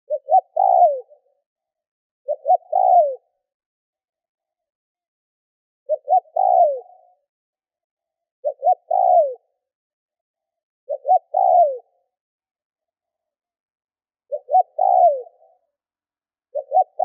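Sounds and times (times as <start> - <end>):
dove cooing: 0.1 - 1.3, 2.2 - 3.4, 5.9 - 7.2, 8.4 - 9.6, 10.9 - 12.1, 14.3 - 15.7, 16.5 - 17.0.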